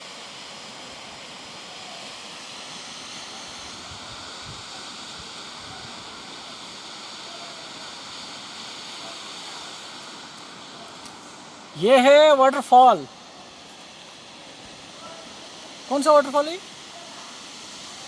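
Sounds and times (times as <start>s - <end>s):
waterfall splashing: 4.7s - 18.0s.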